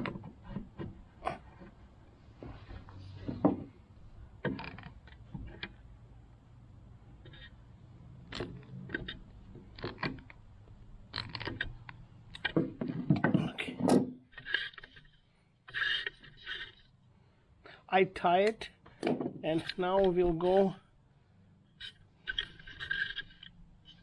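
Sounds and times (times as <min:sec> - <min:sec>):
hands knocking and scraping hose fitting: 0:02.4 - 0:03.8.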